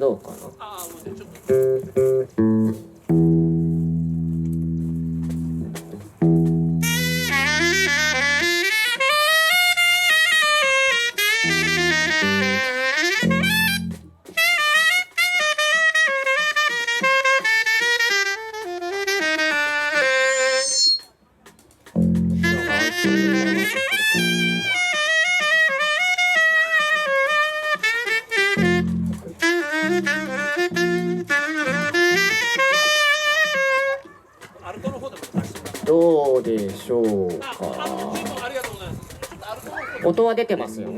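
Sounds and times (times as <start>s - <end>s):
short low accompanying notes: 1.5s - 8.7s, 11.4s - 14.1s, 22.0s - 25.0s, 28.0s - 32.8s
saxophone playing jazzy melody: 1.5s - 21.1s, 22.0s - 34.2s.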